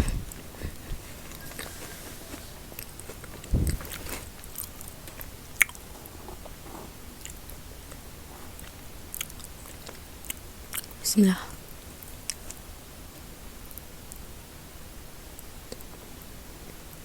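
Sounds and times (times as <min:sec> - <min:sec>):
quiet chewing: 0:00.0 - 0:11.0, 0:12.0 - 0:12.7, 0:15.4 - 0:17.0
low thump: 0:03.5 - 0:04.2.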